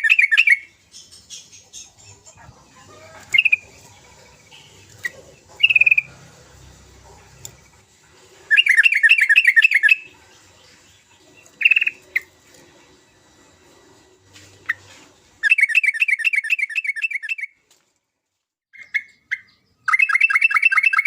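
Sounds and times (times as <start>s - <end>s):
bulbul calling: 0.0s - 6.2s, 8.5s - 12.4s, 18.7s - 21.0s
rapid chattering bird notes: 0.0s - 13.1s.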